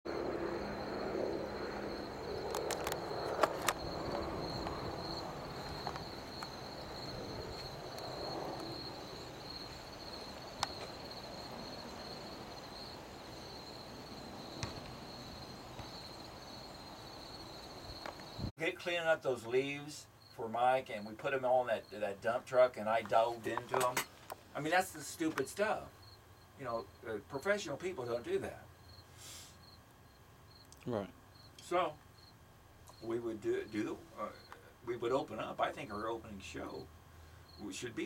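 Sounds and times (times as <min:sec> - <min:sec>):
insects chirping: 0:00.1 - 0:38.0
sharp clicks: 0:02.5 - 0:03.8.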